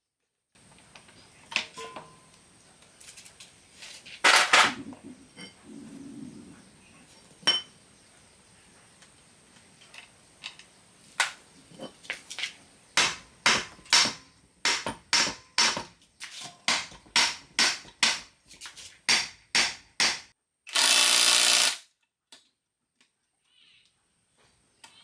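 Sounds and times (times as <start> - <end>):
hammer striking metal: 13.0 - 15.9
power tool burst: 20.7 - 21.8.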